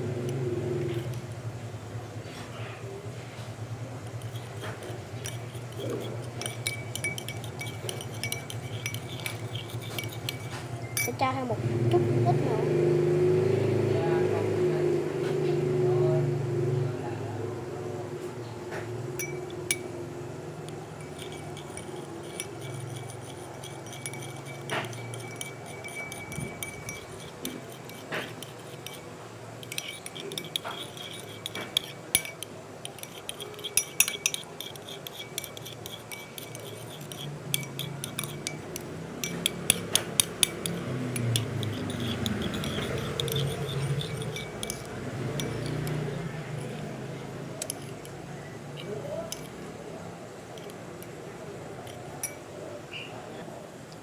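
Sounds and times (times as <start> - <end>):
metal spoon stirring slime in bowl: 0.0 - 1.4, 3.9 - 12.8, 19.2 - 20.0, 20.6 - 49.7, 50.5 - 51.2, 51.8 - 53.1.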